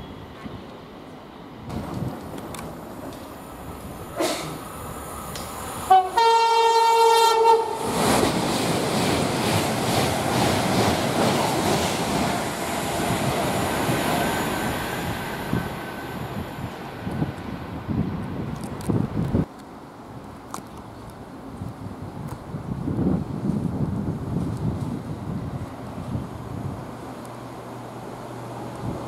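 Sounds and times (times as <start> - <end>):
train passing at speed: 0.0 - 20.2, 20.9 - 29.0
train horn three-tone call: 5.9 - 7.8.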